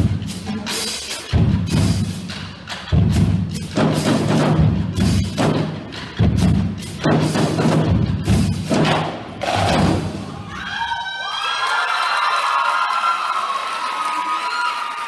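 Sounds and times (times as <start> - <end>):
snare drums rapid strokes: 0.0 - 10.3
bass drums: 0.0 - 10.5.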